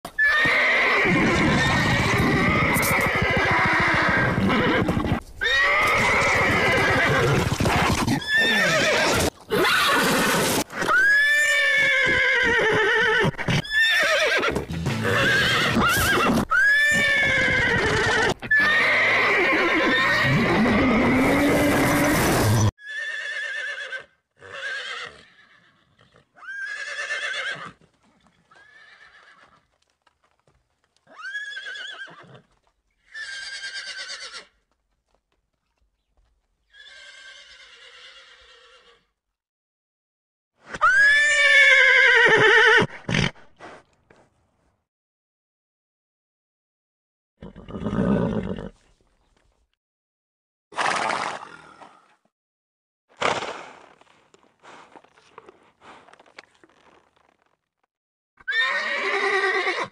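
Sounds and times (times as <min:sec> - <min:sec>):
horses whinnying and neighing: 0:00.1 - 0:29.6, 0:31.0 - 0:34.6, 0:36.7 - 0:39.1, 0:40.7 - 0:43.8, 0:47.4 - 0:48.9, 0:58.4 - 0:59.9.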